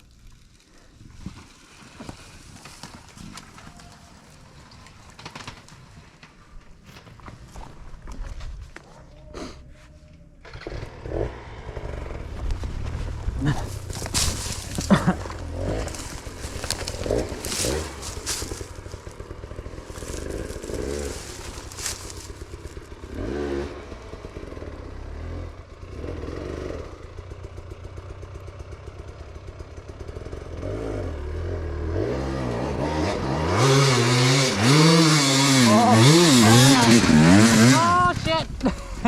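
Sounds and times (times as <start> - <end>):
dirt bike engine revving: 10.4 - 27.5, 30.1 - 39.0.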